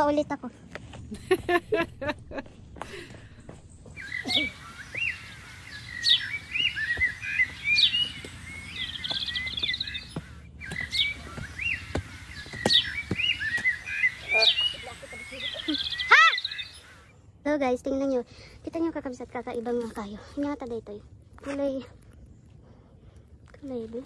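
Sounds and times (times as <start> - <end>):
birds chirping and whistling: 3.0 - 17.3
bird trill: 3.9 - 17.1.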